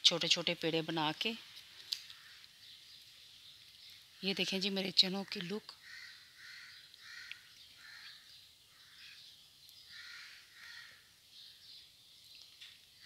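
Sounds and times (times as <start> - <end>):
faint bird calling: 2.0 - 2.9, 5.2 - 11.6.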